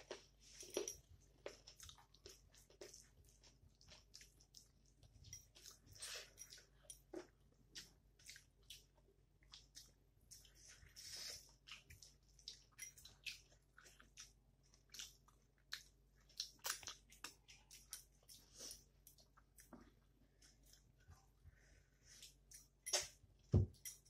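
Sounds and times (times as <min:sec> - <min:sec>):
wet chewing and lip smacks: 0:00.0 - 0:20.9
fingers squishing food: 0:06.6 - 0:21.0.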